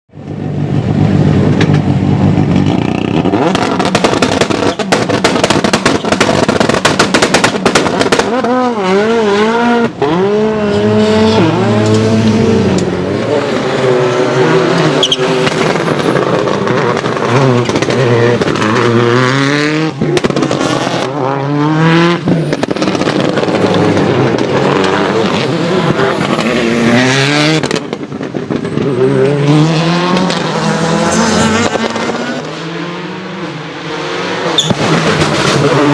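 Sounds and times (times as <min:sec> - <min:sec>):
rally car engine revving: 0:00.4 - 0:35.9
exhaust popping crackle: 0:02.4 - 0:08.6, 0:15.4 - 0:19.3.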